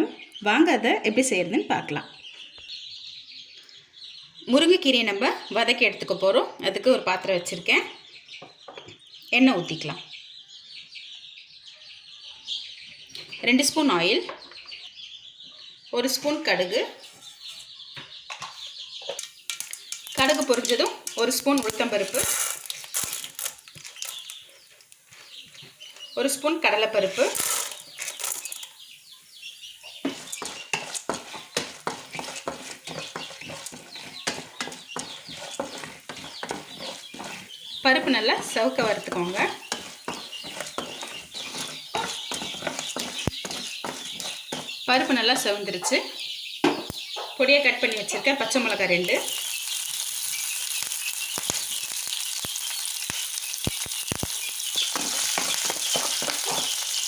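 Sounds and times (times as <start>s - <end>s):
spoon scraping a pan: 18.4s - 24.7s, 26.6s - 28.7s, 30.0s - 45.2s, 47.8s - 57.0s
chillies sizzling in hot oil: 19.1s - 45.6s, 47.4s - 57.0s.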